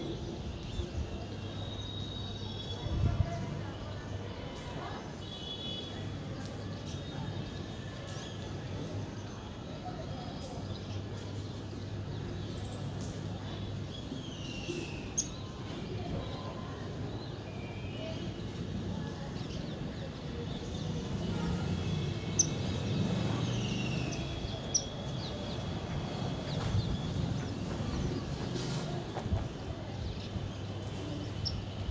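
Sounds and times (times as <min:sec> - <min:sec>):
small birds chirping: 0:09.2 - 0:29.0, 0:29.8 - 0:31.9.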